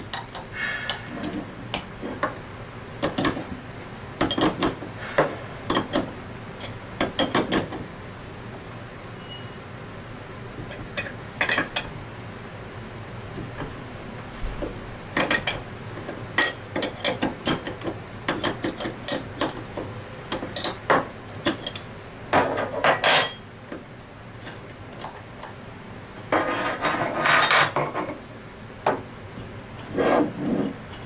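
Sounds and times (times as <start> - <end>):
metal tools clinking: 22.9 - 23.6.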